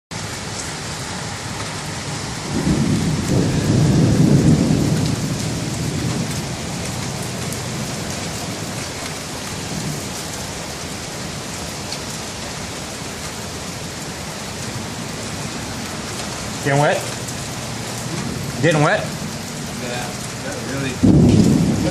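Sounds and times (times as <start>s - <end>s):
steady rain falling: 0.1s - 21.9s
low rumble of thunder: 2.4s - 9.0s, 17.0s - 21.9s.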